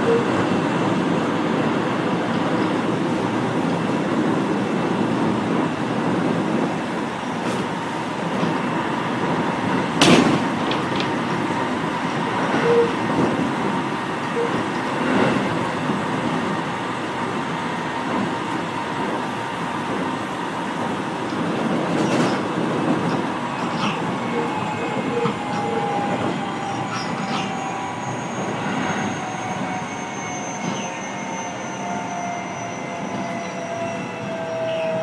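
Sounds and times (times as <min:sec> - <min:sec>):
train wheels rumbling on rail: 0:00.0 - 0:35.0
rail joint clacks: 0:06.0 - 0:16.5, 0:20.8 - 0:27.6.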